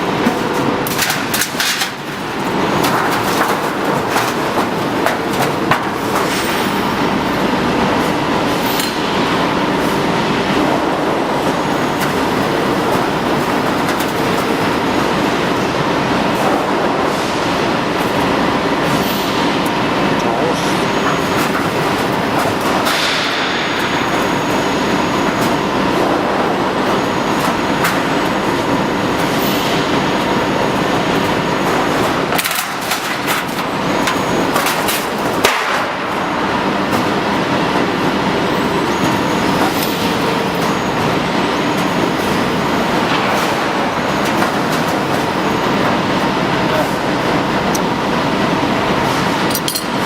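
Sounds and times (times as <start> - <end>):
industrial machine clattering: 0.0 - 50.0.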